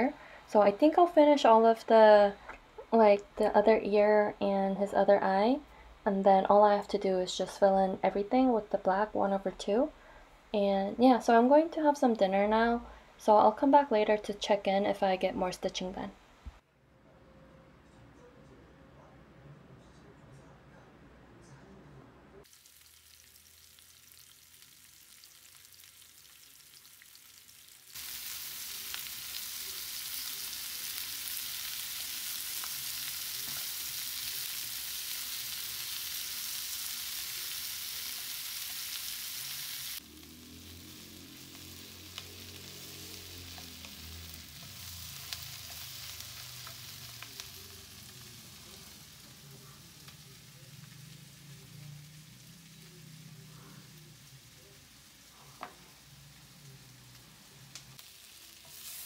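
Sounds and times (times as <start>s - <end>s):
onions sizzling in a pan: 22.4s - 59.0s.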